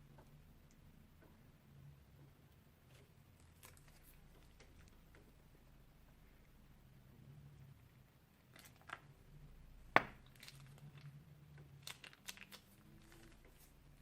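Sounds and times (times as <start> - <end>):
slime crackling: 10.0 - 14.0
plastic bag crinkling: 10.2 - 11.1, 11.8 - 13.8.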